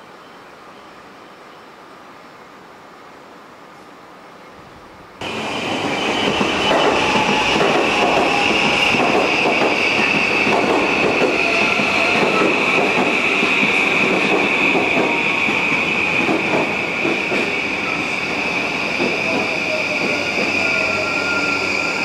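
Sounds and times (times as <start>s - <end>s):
train rumble: 5.2s - 22.0s.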